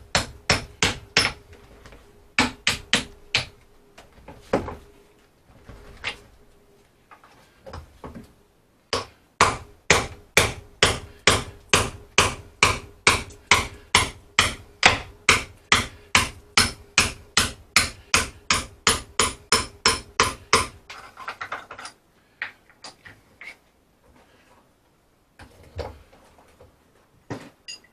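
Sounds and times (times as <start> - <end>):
hammer striking wood: 0.1 - 1.4, 2.4 - 3.5, 8.9 - 20.8.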